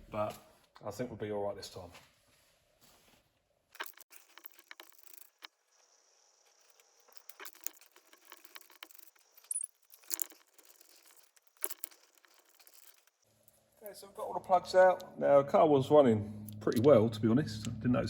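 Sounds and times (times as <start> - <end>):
metal hand tools clinking: 3.8 - 5.5, 6.6 - 13.2.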